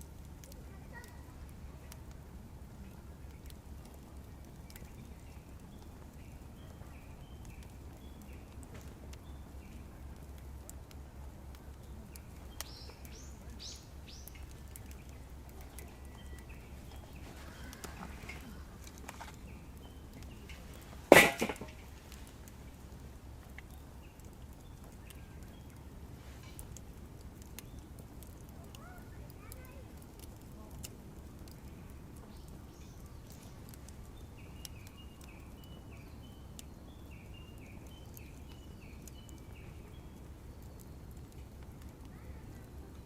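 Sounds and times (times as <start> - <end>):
low steady hum: 0.0 - 43.0
faint bird chirps: 11.7 - 20.9
sharp loud knock: 21.1 - 21.7.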